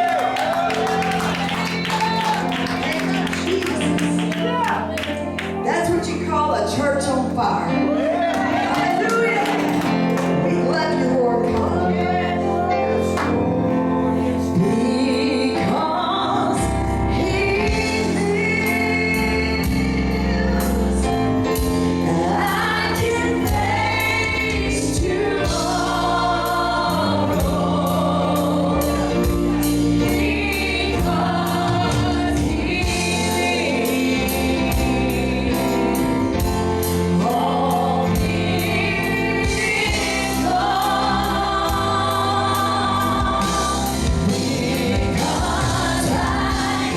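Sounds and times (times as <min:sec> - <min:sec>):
choir singing gospel: 0:00.0 - 0:46.9
band with bass and drums: 0:17.7 - 0:46.9.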